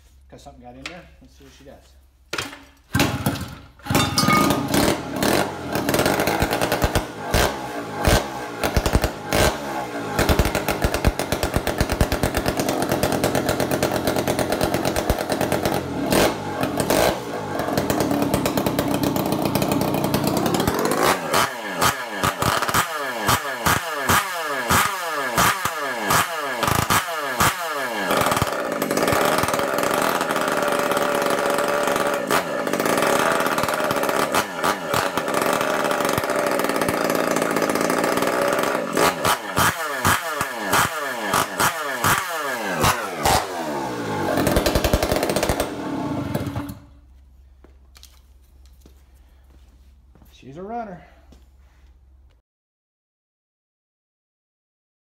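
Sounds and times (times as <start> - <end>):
two-stroke engine revving: 3.0 - 46.9.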